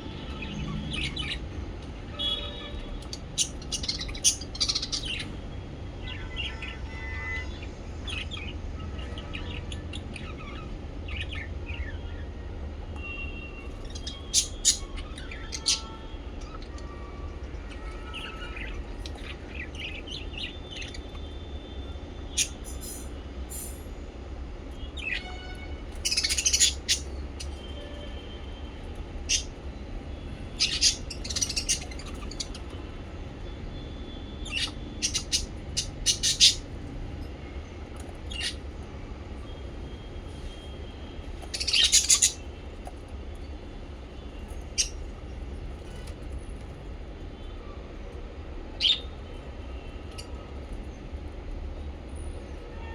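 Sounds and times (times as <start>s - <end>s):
small parrots chirping: 0.2s - 1.6s, 2.2s - 5.4s, 6.0s - 11.9s, 13.6s - 22.9s, 24.9s - 29.8s, 30.4s - 37.0s, 37.9s - 38.8s, 39.4s - 43.1s, 44.2s - 45.2s, 48.7s - 50.4s.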